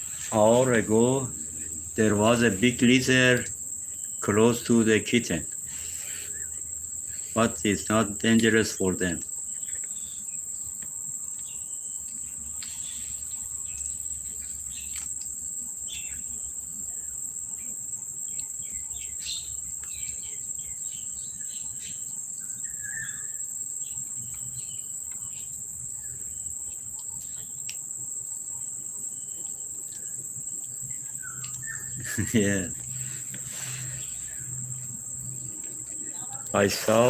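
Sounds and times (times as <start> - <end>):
crickets droning: 0.0 - 37.0.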